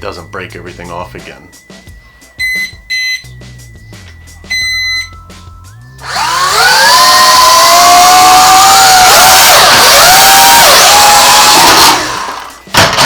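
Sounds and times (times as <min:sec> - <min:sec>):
drone beeps: 0:02.4 - 0:03.4, 0:04.4 - 0:05.9
drone motors spinning up: 0:06.0 - 0:12.6.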